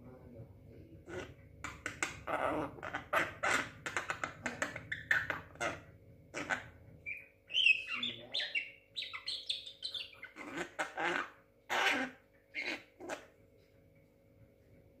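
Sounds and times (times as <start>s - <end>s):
bird harsh clicking calls: 1.1s - 5.8s, 6.4s - 13.3s
bird whistled chirps: 7.1s - 10.2s.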